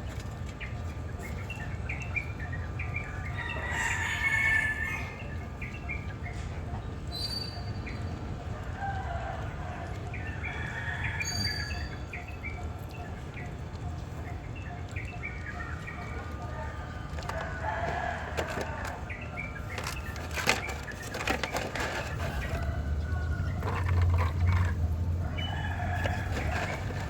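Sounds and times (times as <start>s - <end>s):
birds chirping and clucking: 0.0s - 27.0s.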